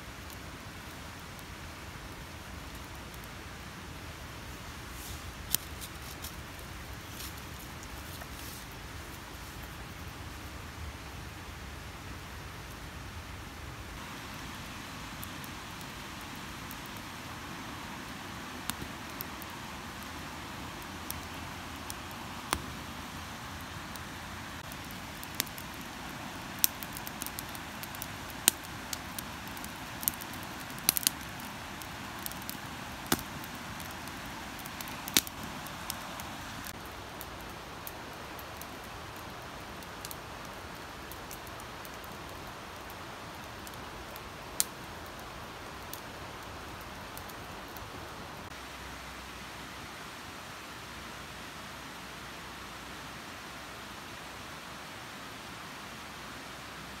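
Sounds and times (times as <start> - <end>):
wood campfire crackling: 0.0 - 51.2
sharp pops of fire: 21.1 - 22.8, 24.6 - 36.0.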